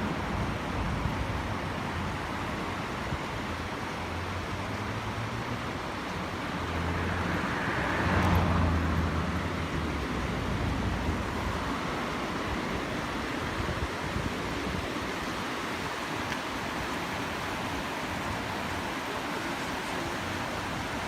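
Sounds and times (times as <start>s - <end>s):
flowing water: 0.0s - 21.0s
road vehicle passing: 4.0s - 13.2s.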